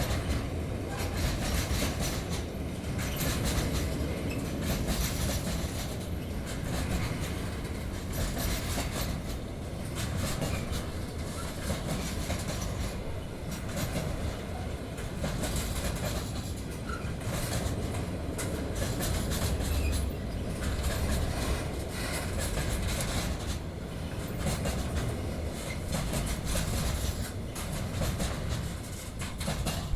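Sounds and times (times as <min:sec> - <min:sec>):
train rumbling over bridge: 0:00.0 - 0:29.9
train wheel clatter: 0:00.0 - 0:29.9.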